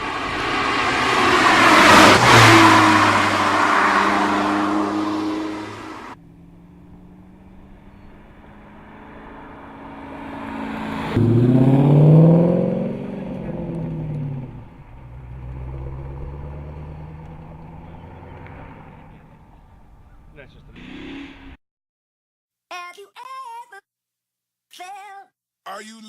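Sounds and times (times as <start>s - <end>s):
sports car passing at speed: 0.0s - 20.3s
car engine revving: 0.0s - 21.4s.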